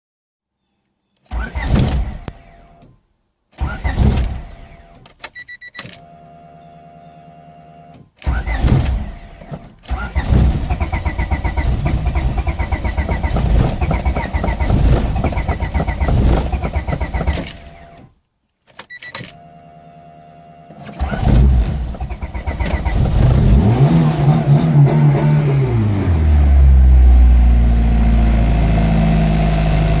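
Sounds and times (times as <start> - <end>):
starter motor cranking engine: 8.2 - 17.9, 20.9 - 24.3
car engine revving and idling: 8.4 - 18.0, 21.0 - 30.0.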